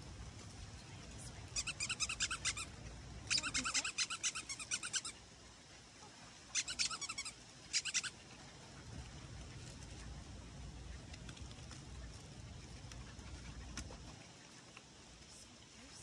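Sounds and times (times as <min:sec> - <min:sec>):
bird high-pitched chattering: 0:01.5 - 0:05.2, 0:06.5 - 0:08.2.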